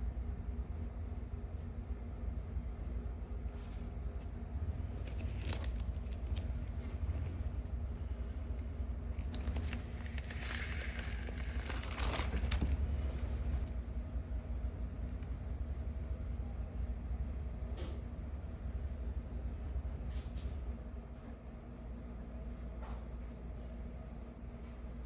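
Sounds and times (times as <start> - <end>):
steady low rumble: 0.0 - 21.3
packaging rustling and crinkling: 4.8 - 7.0, 9.2 - 13.7.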